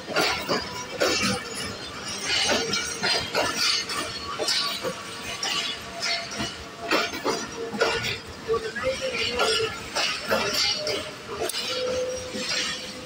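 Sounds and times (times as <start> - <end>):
train coaches rolling past: 0.0 - 13.0
sharp metallic clanks: 0.1 - 8.3.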